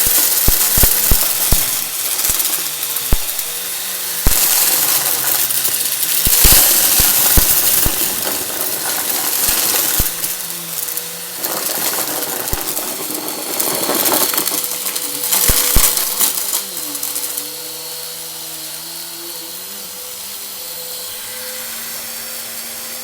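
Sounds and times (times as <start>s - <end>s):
confetti clicking and rattling: 0.0s - 17.7s
vacuum cleaner running: 0.0s - 23.0s.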